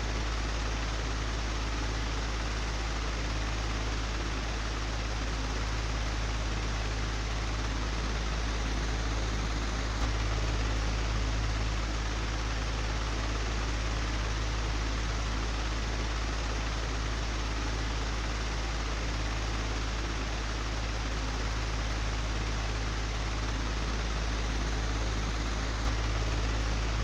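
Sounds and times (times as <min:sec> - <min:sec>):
electric fan running: 0:06.3 - 0:27.0.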